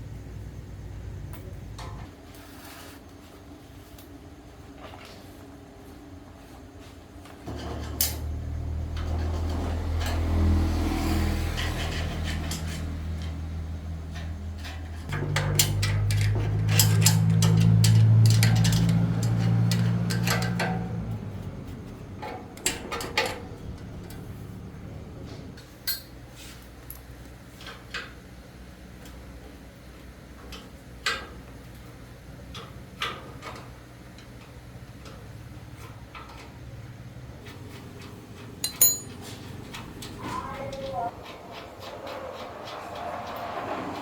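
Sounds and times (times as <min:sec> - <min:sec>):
metallic clinks of tools: 0:38.6 - 0:39.4.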